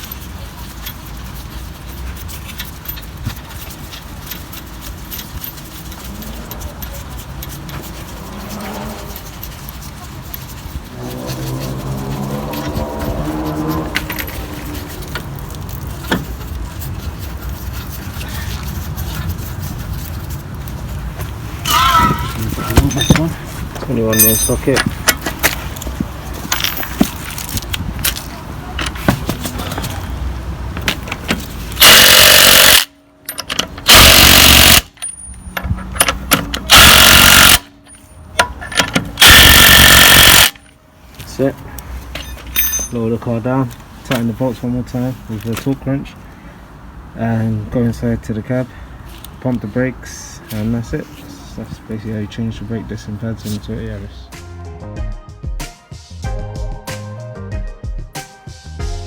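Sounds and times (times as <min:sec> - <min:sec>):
impact wrench rattling: 0:00.0 - 0:16.5, 0:21.7 - 0:30.0, 0:30.8 - 0:40.8, 0:42.1 - 0:43.0
metallic clinks and knocks: 0:00.0 - 0:16.5, 0:21.6 - 0:30.1, 0:34.6 - 0:40.8, 0:42.1 - 0:43.1.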